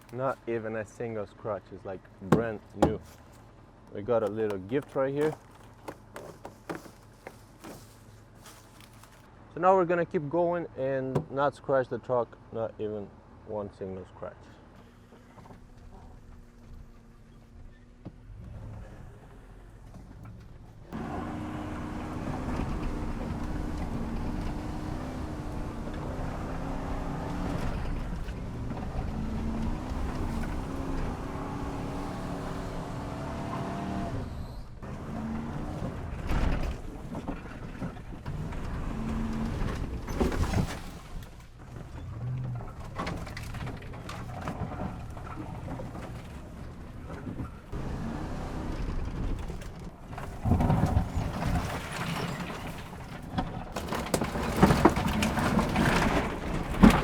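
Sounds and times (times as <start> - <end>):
sharp knocks: 2.3 - 3.1
truck engine revving: 20.9 - 37.1, 38.2 - 40.1, 47.4 - 51.2.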